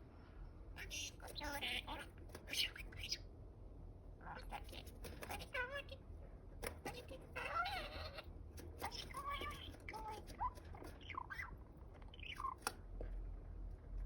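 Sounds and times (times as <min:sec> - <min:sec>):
budgerigar chirping: 0:07.4 - 0:12.7.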